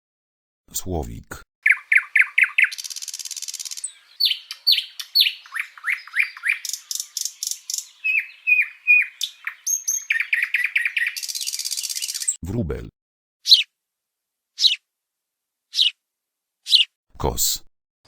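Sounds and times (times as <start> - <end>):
nightingale singing: 1.6 - 12.4, 13.5 - 13.7, 14.6 - 14.8, 15.7 - 16.0, 16.7 - 16.9.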